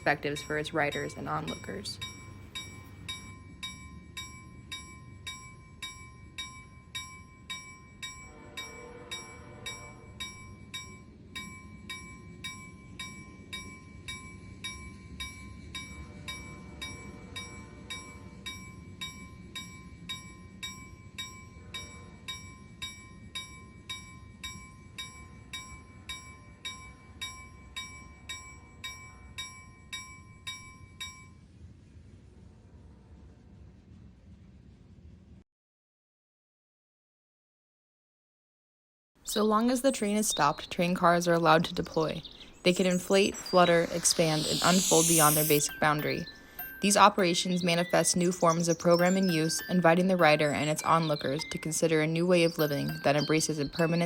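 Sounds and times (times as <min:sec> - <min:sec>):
pitched swelling sound: 0:42.6 - 0:46.7
faint high tone: 0:42.7 - 0:49.7.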